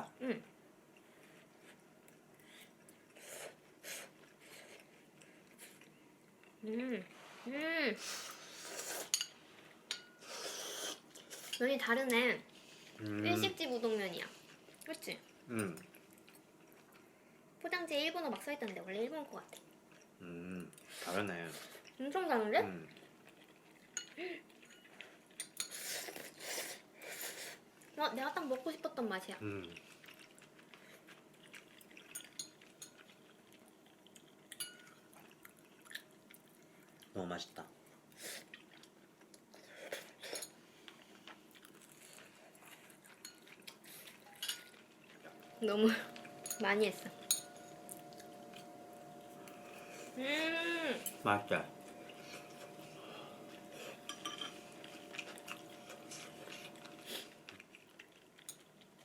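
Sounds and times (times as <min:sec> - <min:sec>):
light chewing: 0:00.9 - 0:06.7, 0:08.3 - 0:17.5, 0:18.3 - 0:22.0, 0:22.8 - 0:28.0, 0:29.3 - 0:59.0
faint steady hum: 0:37.7 - 0:59.0
utensils clinking against dishes: 0:44.3 - 0:50.2, 0:50.9 - 0:57.5.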